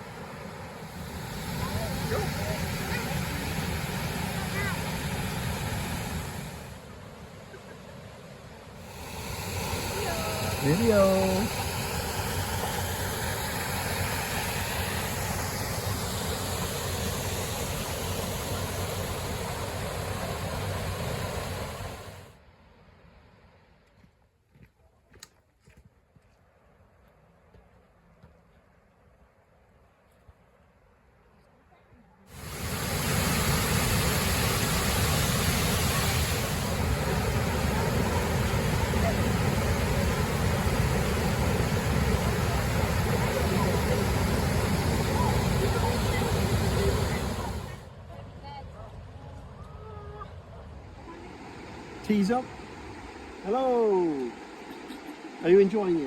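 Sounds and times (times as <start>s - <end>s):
waterfall rushing: 0.0s - 6.8s, 8.8s - 22.3s, 32.3s - 47.8s, 51.0s - 56.0s.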